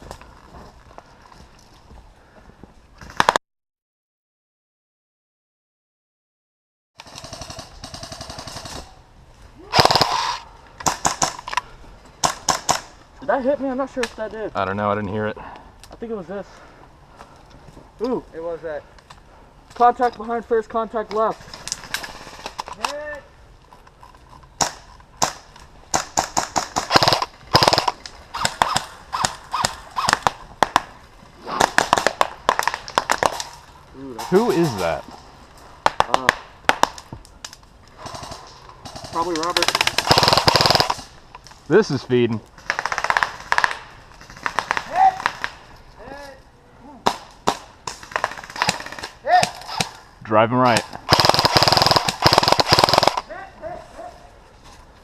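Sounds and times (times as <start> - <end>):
airsoft guns firing: 7.0 - 8.9, 9.7 - 11.6, 12.2 - 13.0, 24.6 - 33.6, 35.8 - 37.1, 38.0 - 41.2, 42.6 - 45.7, 47.0 - 50.0, 50.7 - 53.3.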